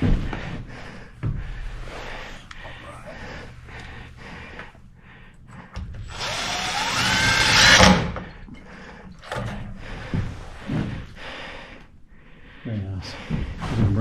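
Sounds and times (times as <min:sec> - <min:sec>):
power drill whining: 0:06.1 - 0:08.2.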